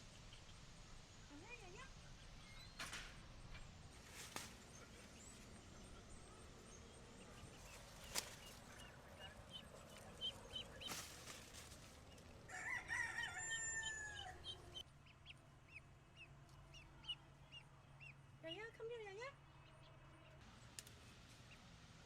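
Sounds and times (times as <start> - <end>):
rooster crowing: 12.4 - 14.8.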